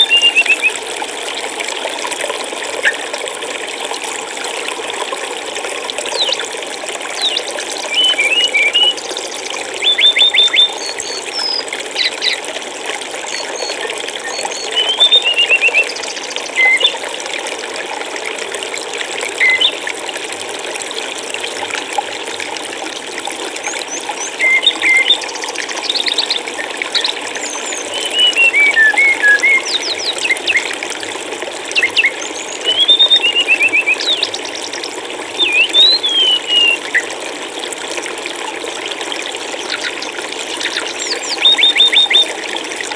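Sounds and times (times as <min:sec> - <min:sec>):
stream water rushing: 0:00.0 - 0:42.9
songbirds chirping and trilling: 0:07.2 - 0:12.4, 0:13.3 - 0:17.0, 0:23.7 - 0:30.7, 0:31.7 - 0:37.1, 0:39.6 - 0:42.2.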